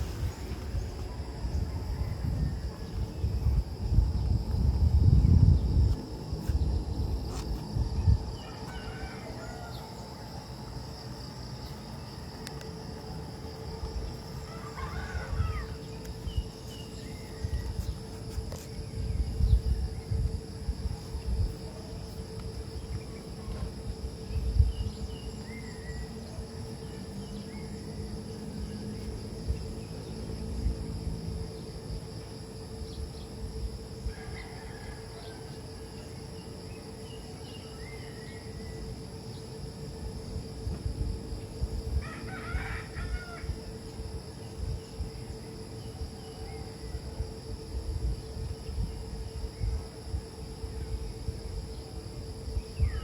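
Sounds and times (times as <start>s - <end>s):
low rumbles: 0.0s - 5.9s
high insect drone: 0.0s - 53.0s.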